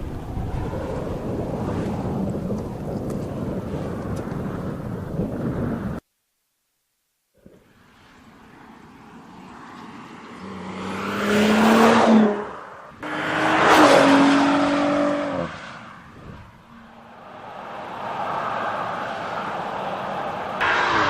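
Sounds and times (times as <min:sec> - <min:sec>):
road noise: 0:00.0 - 0:06.0, 0:07.4 - 0:21.0
car driving past: 0:07.9 - 0:21.0.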